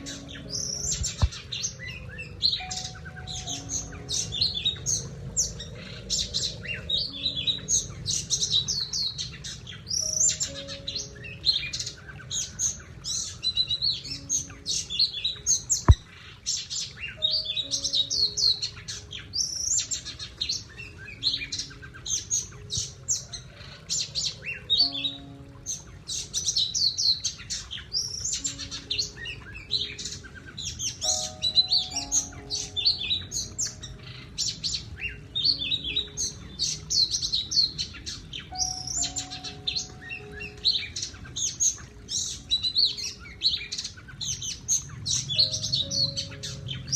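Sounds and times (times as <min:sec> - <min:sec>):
songbird singing: 0:00.0 - 0:46.9.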